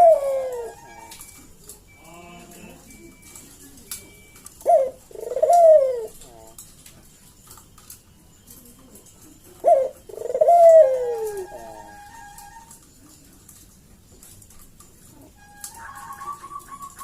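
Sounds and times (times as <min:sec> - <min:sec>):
dove cooing: 0:00.0 - 0:02.0, 0:02.7 - 0:07.1, 0:08.4 - 0:13.5, 0:14.8 - 0:17.0.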